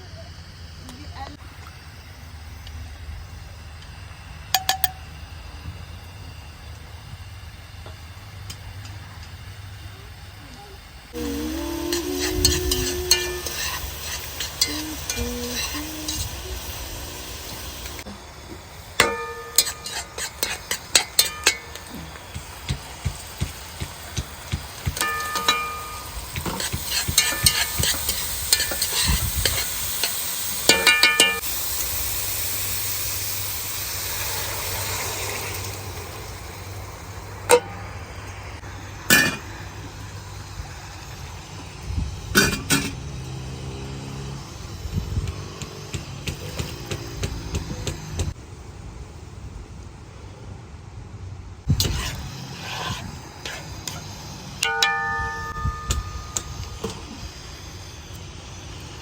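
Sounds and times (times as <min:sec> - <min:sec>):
food sizzling: 0:00.0 - 0:48.4, 0:51.7 - 0:59.0
metal utensil clinking on pot: 0:19.0 - 0:21.9, 0:24.9 - 0:31.4, 0:54.6 - 0:56.5.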